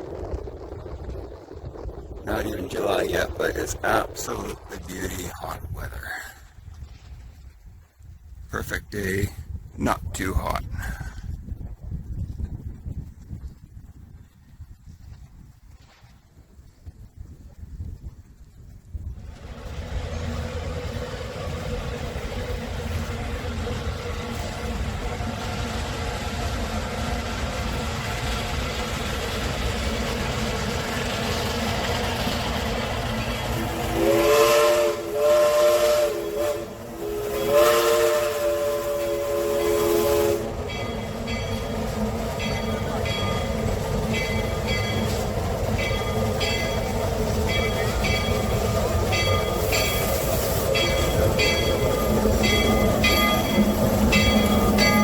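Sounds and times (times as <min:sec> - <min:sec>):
train rumbling: 0:00.0 - 0:55.0
train whistle blasts: 0:33.6 - 0:41.1.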